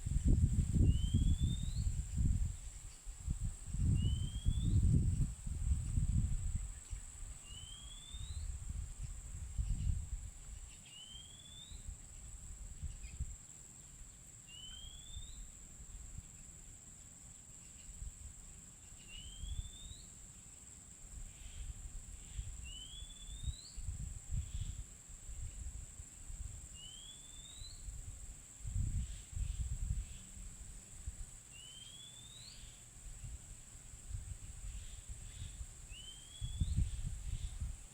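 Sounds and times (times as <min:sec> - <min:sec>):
bird short rising whistle: 0:04.0 - 0:04.7, 0:07.5 - 0:08.5, 0:35.9 - 0:36.9.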